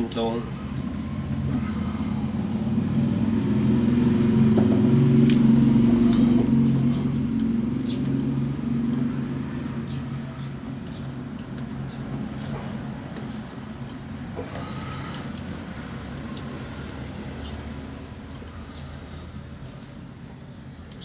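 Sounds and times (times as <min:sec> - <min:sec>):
vehicle engine passing by: 0:00.0 - 0:21.0
faint clicks: 0:06.8 - 0:21.0.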